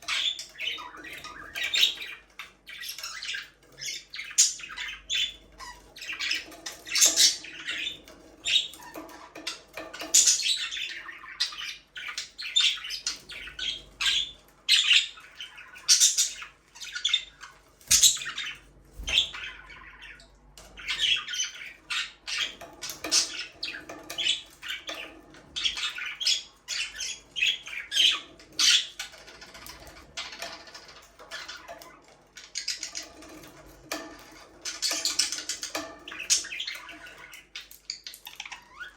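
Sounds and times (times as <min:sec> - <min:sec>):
budgerigars chattering and squawking: 0:00.0 - 0:38.9.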